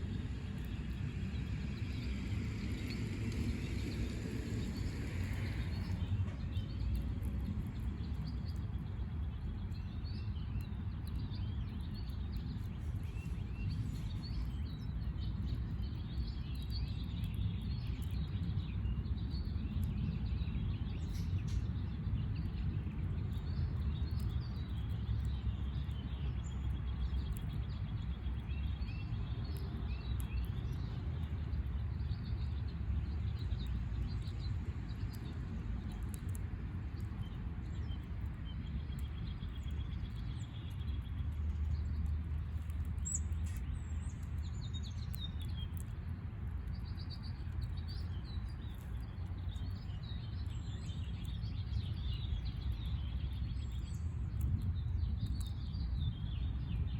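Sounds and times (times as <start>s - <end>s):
low rumble: 0.0s - 9.1s
small birds chirping: 0.0s - 56.9s.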